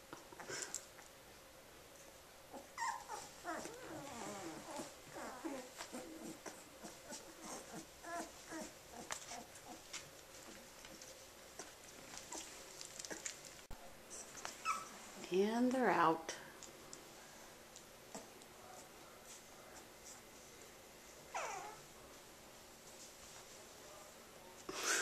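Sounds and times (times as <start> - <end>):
rustling: 2.0 - 15.8
puppies whimpering and squealing: 2.5 - 9.9, 14.2 - 15.0, 21.3 - 21.8.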